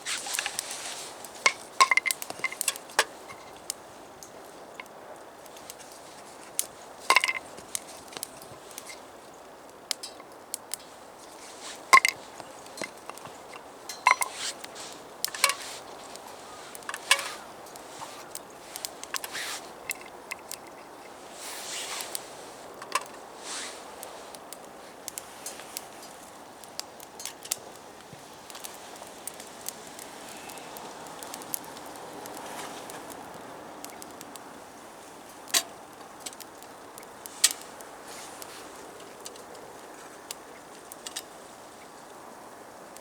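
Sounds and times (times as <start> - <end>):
light metallic knocks and clinks: 0.3 - 3.6, 7.1 - 9.0, 11.6 - 18.1.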